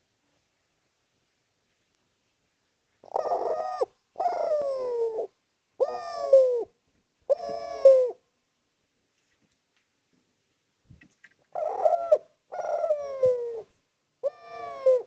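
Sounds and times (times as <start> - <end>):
dove cooing: 3.0 - 8.2, 11.5 - 15.0.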